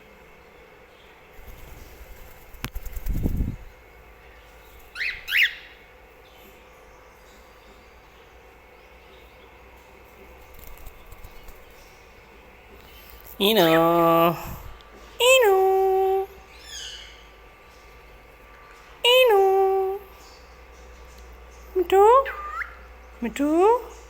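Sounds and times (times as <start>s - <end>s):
bird wings fluttering: 1.4s - 3.7s, 10.4s - 11.9s
bird chirps: 4.5s - 5.8s, 16.5s - 18.0s.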